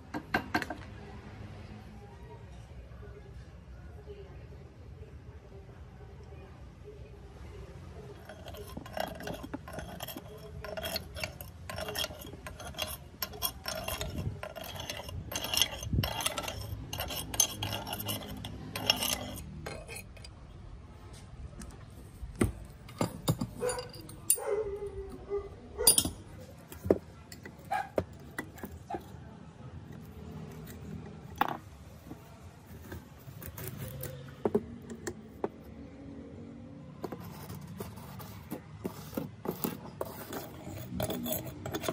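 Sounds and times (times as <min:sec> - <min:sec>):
metal scraping and clinking: 0:08.1 - 0:20.4, 0:22.3 - 0:25.2, 0:25.8 - 0:29.3, 0:37.0 - 0:41.9.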